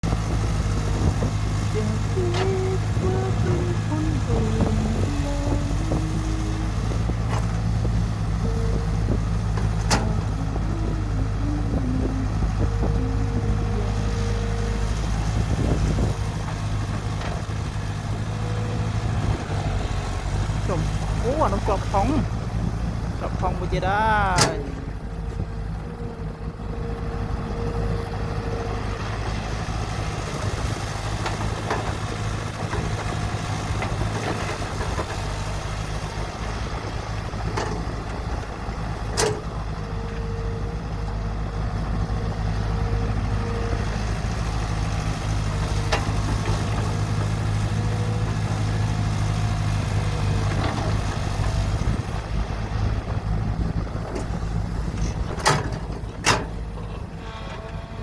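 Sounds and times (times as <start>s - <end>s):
excavator engine running: 0.0s - 58.0s
whine: 1.8s - 7.5s, 8.4s - 16.6s.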